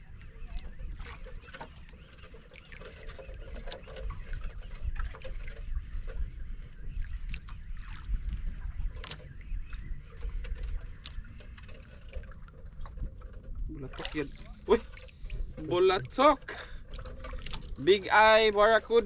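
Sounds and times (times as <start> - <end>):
wind on microphone: 2.2 - 19.0.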